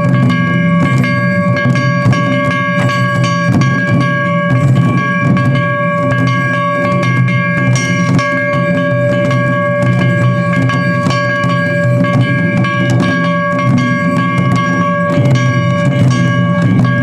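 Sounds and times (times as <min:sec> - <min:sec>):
drums rapid sharp strikes: 0:00.0 - 0:17.0
steady held tone: 0:00.0 - 0:17.0.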